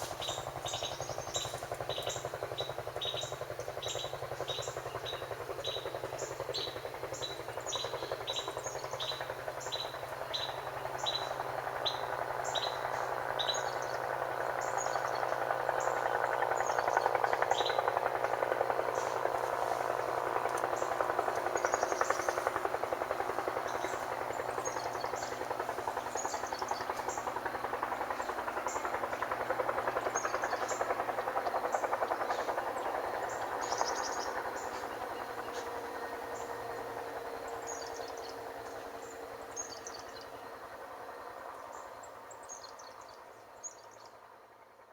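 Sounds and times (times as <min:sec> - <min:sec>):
small songbird chirping: 0:18.9 - 0:22.5, 0:32.1 - 0:35.7.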